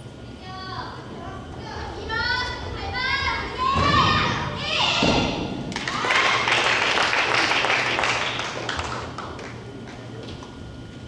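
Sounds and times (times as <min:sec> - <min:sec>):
applause and clapping: 0:05.7 - 0:10.5.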